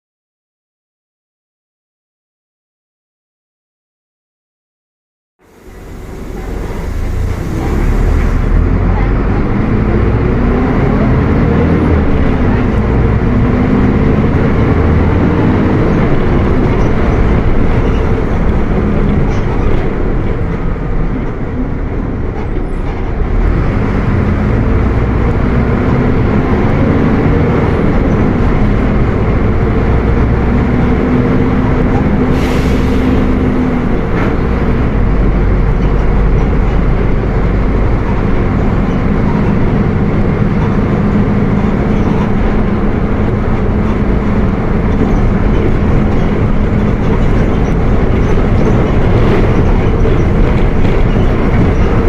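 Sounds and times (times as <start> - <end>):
bus diesel engine revving: 5.4 - 52.0.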